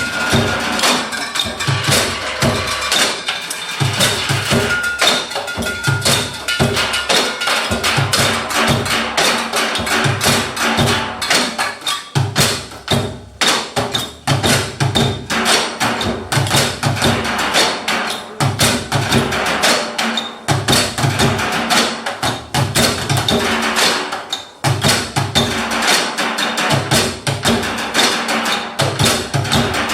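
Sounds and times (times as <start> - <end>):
sustained tones: 0.0 - 11.1
rapid percussion strikes: 0.0 - 29.9.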